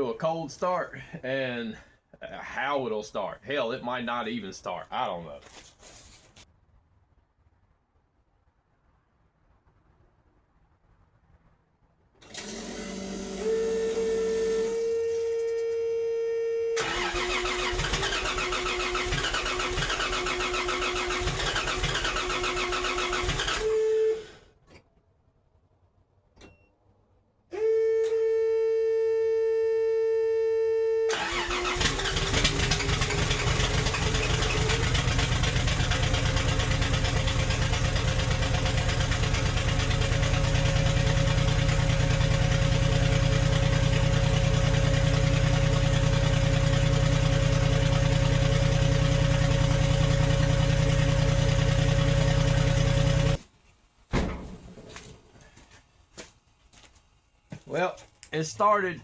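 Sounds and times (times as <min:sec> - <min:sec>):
starter motor cranking: 0:12.2 - 0:14.8, 0:16.8 - 0:24.0, 0:31.1 - 0:53.4
car engine running: 0:31.8 - 0:53.4.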